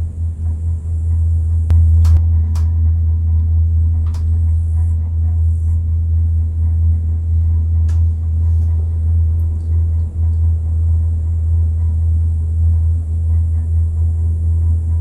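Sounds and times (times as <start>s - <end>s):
lift machinery humming: 0.0s - 15.0s
sharp mechanical clicks and knocks: 1.7s - 2.8s, 4.0s - 4.4s.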